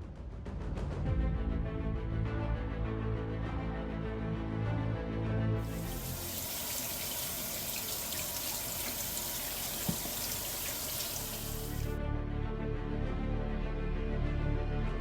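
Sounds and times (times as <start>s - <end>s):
background music: 0.0s - 15.0s
faucet running water into sink: 5.7s - 11.9s.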